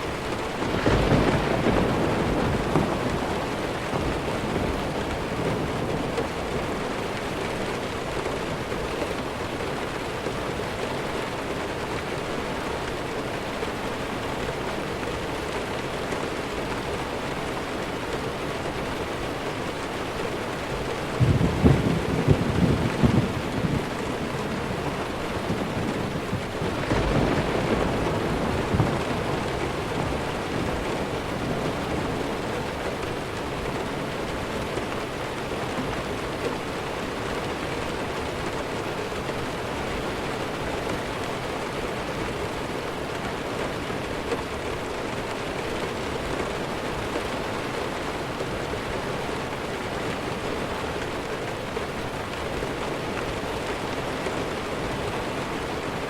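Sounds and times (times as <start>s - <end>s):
steady rainfall: 0.0s - 56.0s
distant thunder rumbling: 0.1s - 9.9s, 21.0s - 35.3s.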